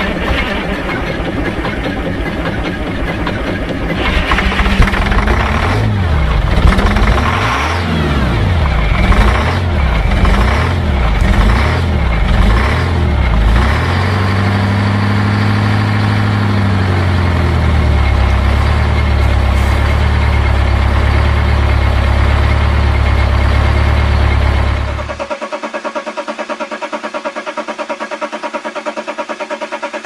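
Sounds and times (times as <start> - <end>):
diesel engine revving and idling: 0.0 - 30.0.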